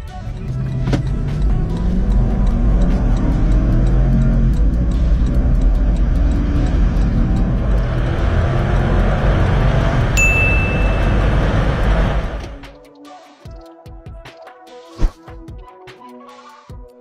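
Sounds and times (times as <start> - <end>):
road and wind noise: 0.0 - 12.8
car engine at high revs: 0.2 - 12.7
high beep: 10.2 - 11.6.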